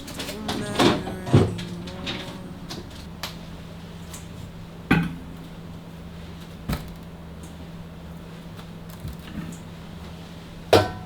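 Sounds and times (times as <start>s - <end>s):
steady low hum: 0.0s - 4.4s.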